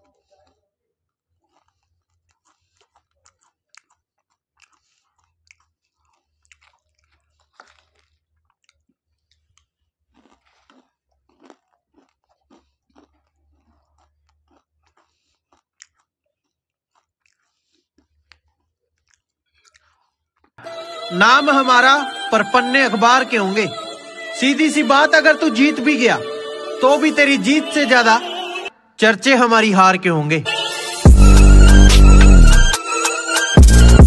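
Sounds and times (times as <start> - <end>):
wet chewing with crunches: 1.2 - 20.6.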